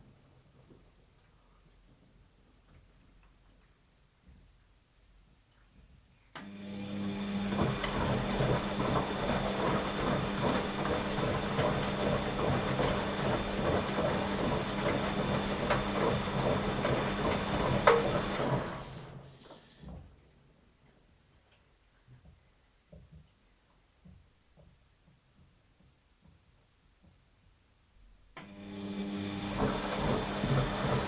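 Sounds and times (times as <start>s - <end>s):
washing machine running: 6.5s - 19.7s, 28.5s - 31.0s.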